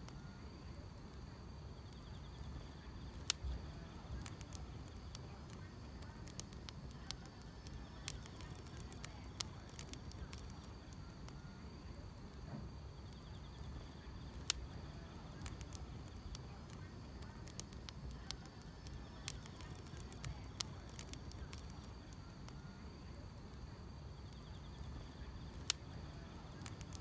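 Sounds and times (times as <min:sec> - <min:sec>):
wood fire crackling and popping: 0:00.0 - 0:27.0
grass insects chirring: 0:01.8 - 0:11.0, 0:13.0 - 0:22.2.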